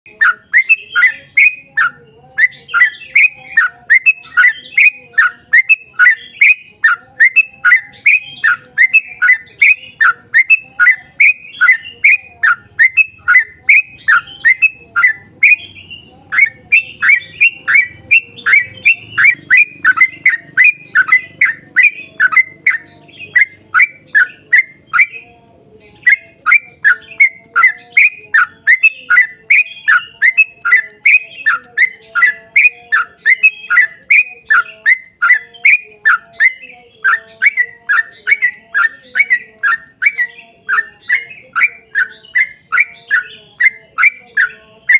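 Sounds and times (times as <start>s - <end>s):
bird singing downward-slurred notes: 0.0s - 44.9s.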